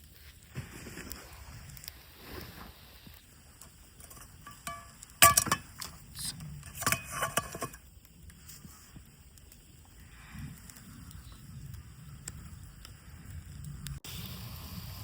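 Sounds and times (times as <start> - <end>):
dishes and utensils clinking: 6.7 - 7.8.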